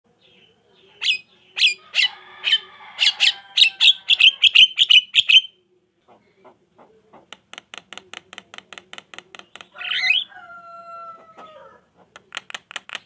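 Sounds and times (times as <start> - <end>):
myna chattering shrill calls: 1.0 - 5.5, 9.8 - 10.3.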